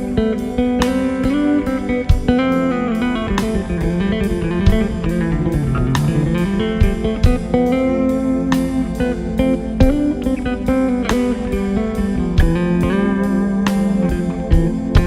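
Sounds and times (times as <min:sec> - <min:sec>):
electric guitar over drums: 0:00.0 - 0:15.0.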